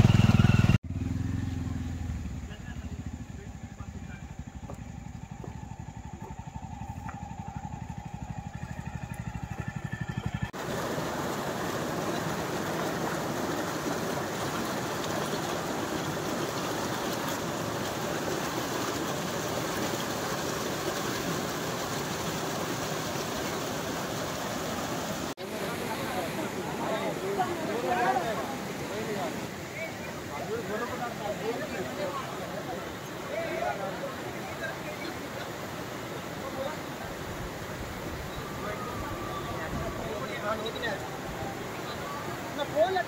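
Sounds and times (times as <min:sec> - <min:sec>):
motorcycle engine running: 0:00.0 - 0:11.1.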